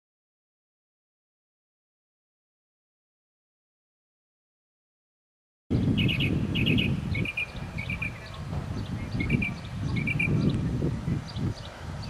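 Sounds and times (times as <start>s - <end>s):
small bird chirping: 5.8s - 10.7s.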